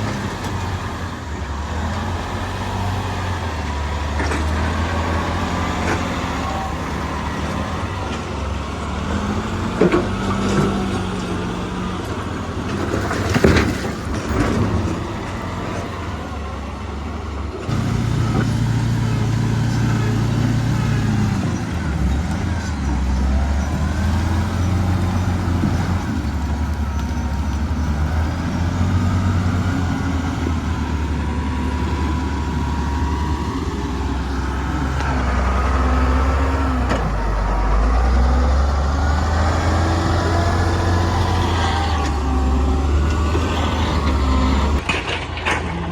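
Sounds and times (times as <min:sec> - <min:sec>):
diesel machinery engines running: 0:00.0 - 0:45.9.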